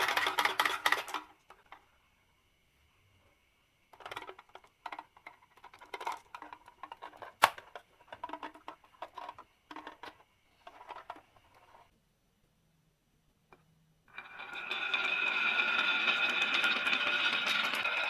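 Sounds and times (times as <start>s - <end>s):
marbles rattling down wooden run: 14.6s - 18.0s.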